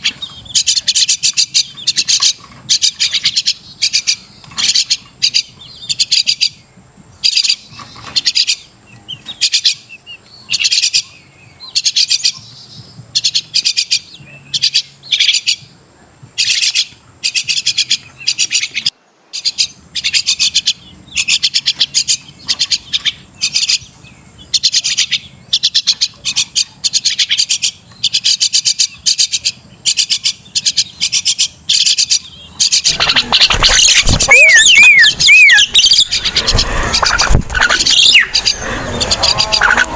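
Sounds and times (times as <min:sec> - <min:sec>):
myna chattering calls: 0:24.5 - 0:39.9.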